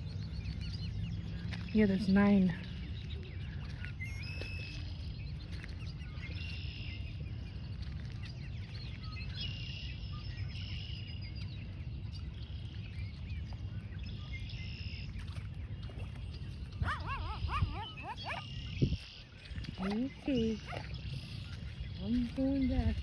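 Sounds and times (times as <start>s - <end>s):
steady low rumble: 0.0s - 3.8s
small birds chirping: 11.3s - 23.0s.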